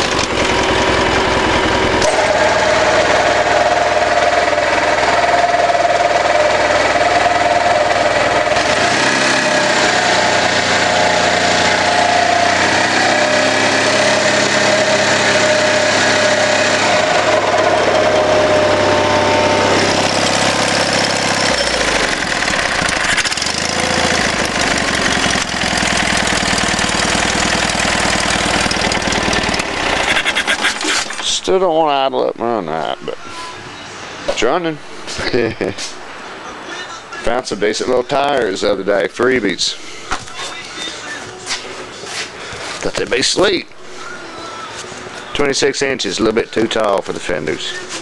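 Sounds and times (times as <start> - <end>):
garden tractor engine running: 0.0 - 31.6.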